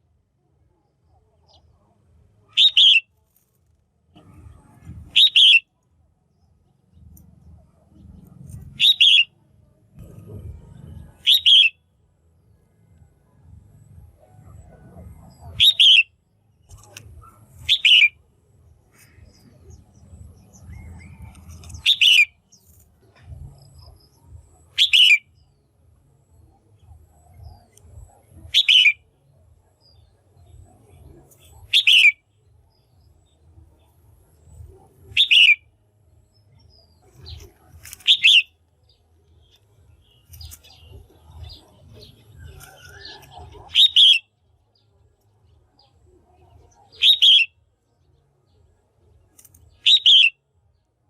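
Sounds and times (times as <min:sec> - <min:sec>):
bird giving short sharp calls: 0:05.0 - 0:05.6.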